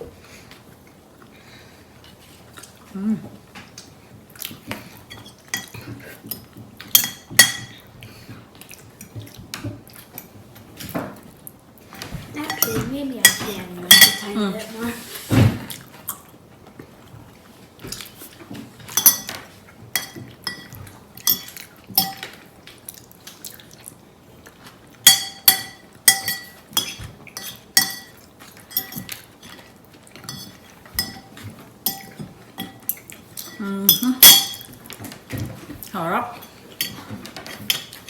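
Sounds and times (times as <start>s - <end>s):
spoon clinking against a dish: 5.1s - 7.8s, 12.4s - 14.3s, 18.9s - 19.4s, 20.0s - 22.3s, 25.0s - 34.8s, 36.4s - 37.0s.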